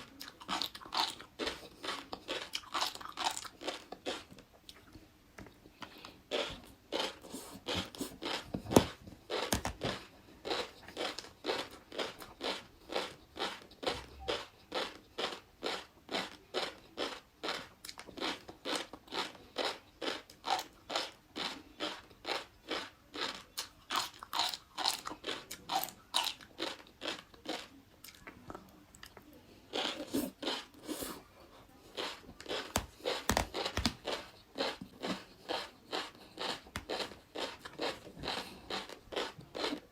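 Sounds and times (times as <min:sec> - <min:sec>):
chewing crunchy food: 0:00.0 - 0:05.0, 0:05.7 - 0:39.9.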